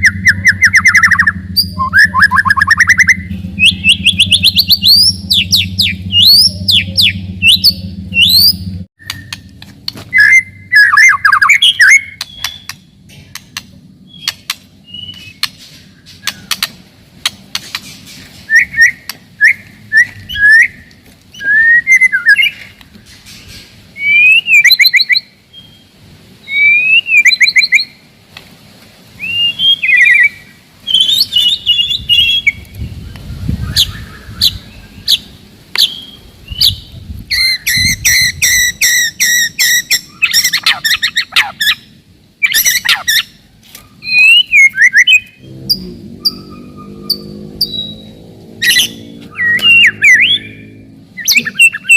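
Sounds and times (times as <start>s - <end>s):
bird singing whistled phrases: 0.0s - 9.5s, 10.1s - 12.9s, 14.1s - 15.5s, 18.5s - 22.7s, 24.0s - 28.0s, 29.2s - 32.6s, 44.0s - 51.9s.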